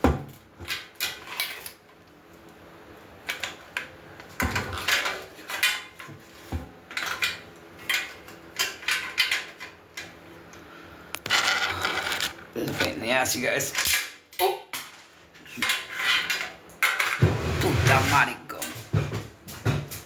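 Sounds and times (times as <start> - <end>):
dull thumps: 17.2 - 20.0.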